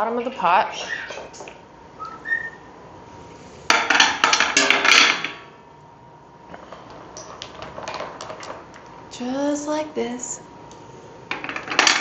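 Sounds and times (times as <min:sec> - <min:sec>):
starling short whistles: 0:02.0 - 0:02.7.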